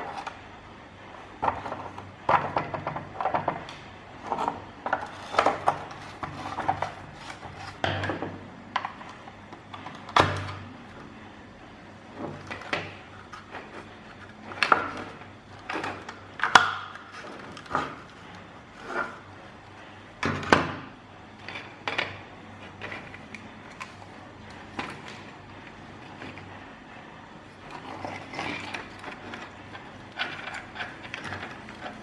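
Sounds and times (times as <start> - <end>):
small hard parts clicking and knocking: 27.6 - 32.0.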